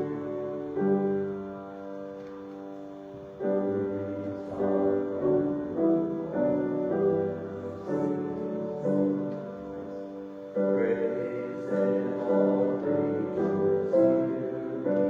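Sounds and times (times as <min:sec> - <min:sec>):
keyboard playing church chords: 0:00.0 - 0:15.0.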